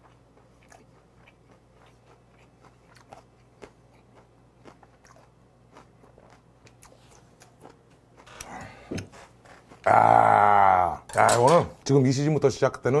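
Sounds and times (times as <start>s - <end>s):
soft wet chewing: 0.0s - 9.9s.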